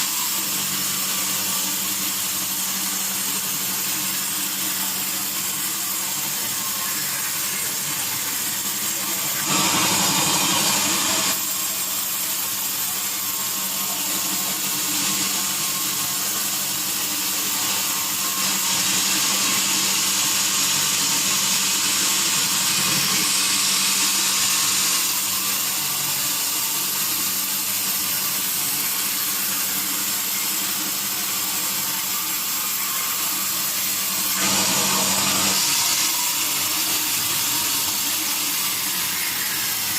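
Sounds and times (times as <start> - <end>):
sawmill saw cutting wood: 0.0 - 39.9.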